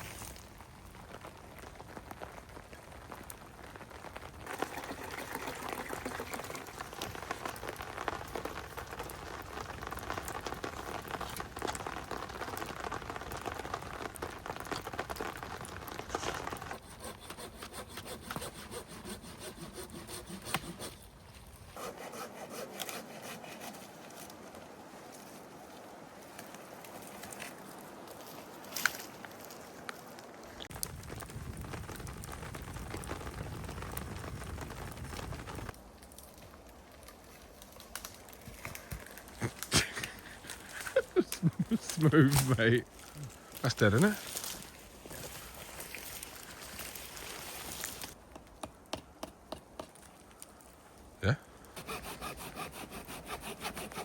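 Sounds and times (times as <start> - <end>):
hand saw cutting wood: 16.2 - 21.0, 21.8 - 24.0, 51.8 - 54.0.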